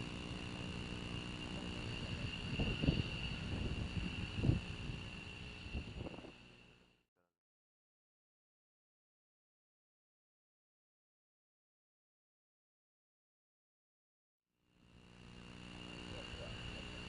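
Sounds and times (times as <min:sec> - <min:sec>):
high insect trill: 0:00.0 - 0:06.9, 0:14.8 - 0:17.0.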